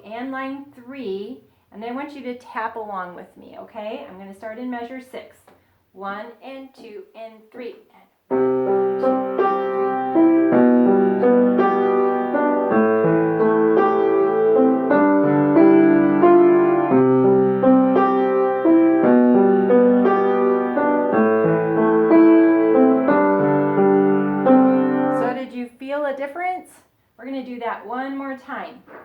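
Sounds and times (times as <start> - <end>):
piano playing: 8.3 - 25.4.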